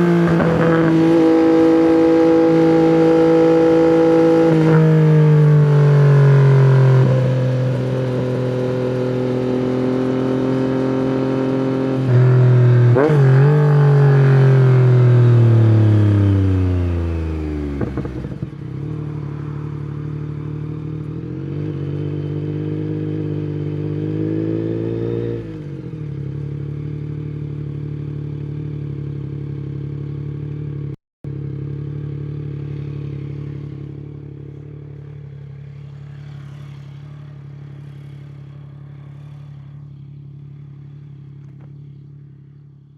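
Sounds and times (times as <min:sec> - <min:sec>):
motorcycle engine: 0:00.0 - 0:42.9.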